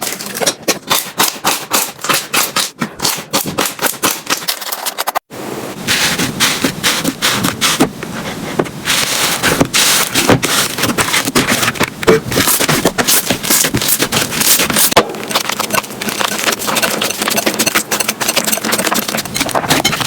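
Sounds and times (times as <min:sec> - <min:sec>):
slime squishing and crackling: 0:06.0 - 0:20.0.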